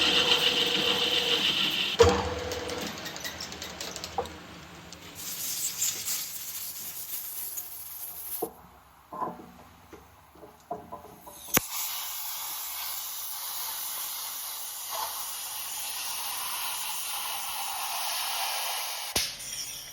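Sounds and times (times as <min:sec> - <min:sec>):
hiss: 0:05.2 - 0:08.5, 0:11.3 - 0:19.9.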